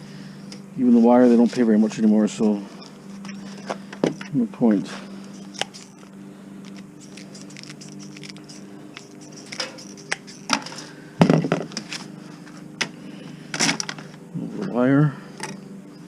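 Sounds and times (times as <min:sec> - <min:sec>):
steady low hum: 0:00.0 - 0:16.0
hand tools clicking and clanking: 0:05.2 - 0:10.9.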